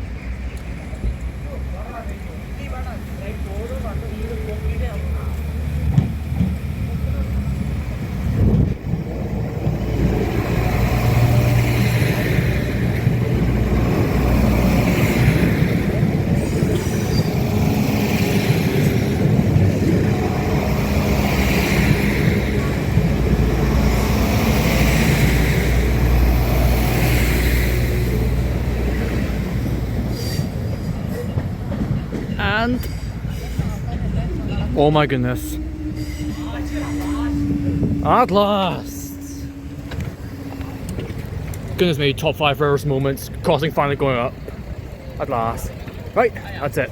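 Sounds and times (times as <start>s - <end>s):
higher swelling tone: 34.6s - 41.4s.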